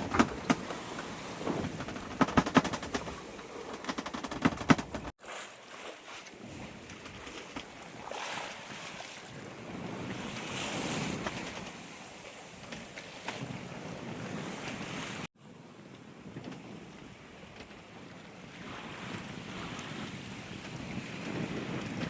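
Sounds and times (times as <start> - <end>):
waves washing along hull: 0.0 - 22.0
wind buffeting microphone: 16.1 - 22.0.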